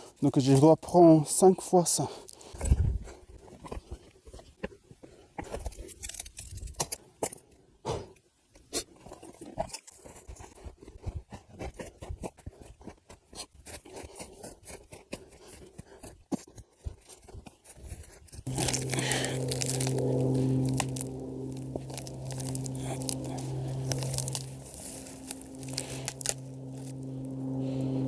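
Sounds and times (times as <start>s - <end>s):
sticks crunching and snapping: 5.4s - 7.4s, 18.5s - 28.0s.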